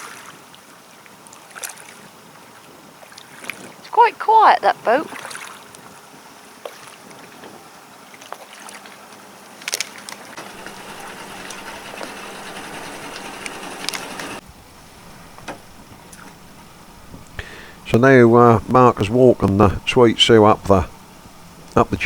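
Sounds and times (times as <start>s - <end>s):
water noise: 3.9s - 5.5s, 10.4s - 22.0s
motorboat engine humming: 10.4s - 22.0s.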